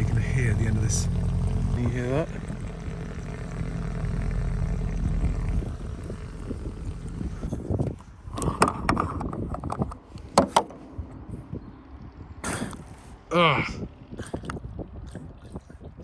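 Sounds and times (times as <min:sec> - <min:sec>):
steady low hum: 0:00.0 - 0:16.0
knocks and rattles: 0:07.8 - 0:10.8.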